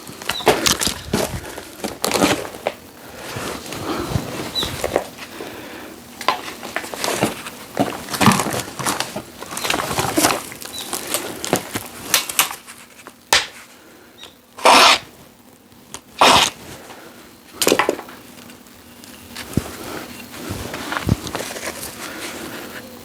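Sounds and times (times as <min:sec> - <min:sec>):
rustling crunch: 0:00.0 - 0:13.9, 0:14.6 - 0:23.0
dry twigs crackling and snapping: 0:00.0 - 0:14.5, 0:15.7 - 0:22.8.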